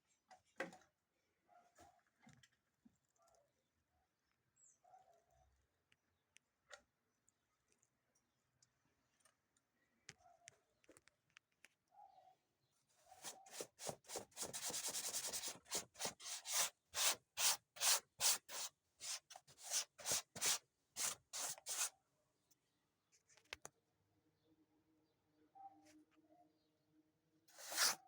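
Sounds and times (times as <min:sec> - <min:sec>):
hand sanding wood: 0:13.2 - 0:21.9, 0:27.6 - 0:28.0.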